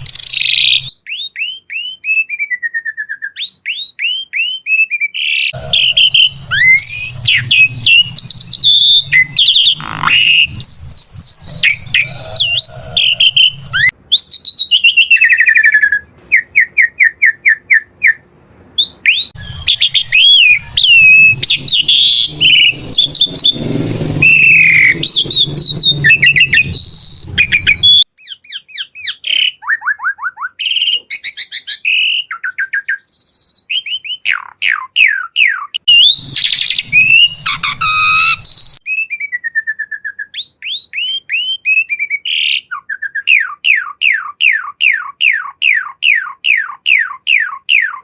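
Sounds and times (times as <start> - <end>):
starling singing: 5.2 - 18.2, 18.8 - 39.2.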